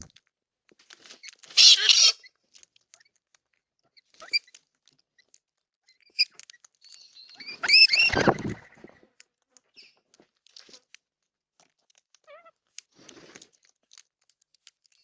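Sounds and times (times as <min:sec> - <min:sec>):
birds chirping: 0:05.9 - 0:09.1, 0:09.7 - 0:10.0.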